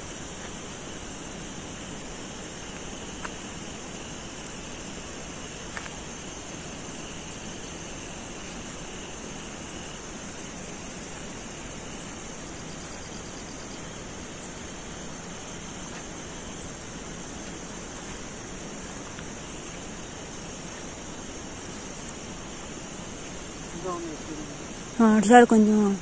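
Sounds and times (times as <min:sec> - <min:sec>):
steady night-time hiss: 0:00.0 - 0:26.0.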